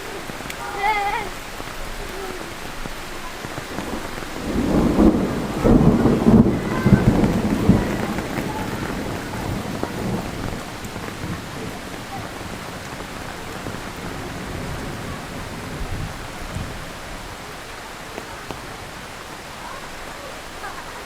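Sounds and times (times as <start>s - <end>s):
heavy rain falling: 0.0s - 21.0s
thunder rumbling: 0.0s - 21.0s.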